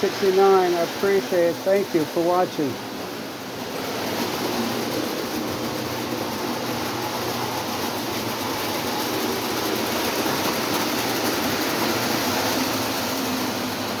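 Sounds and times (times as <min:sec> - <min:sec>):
toy train motors whirring: 0:04.1 - 0:14.0.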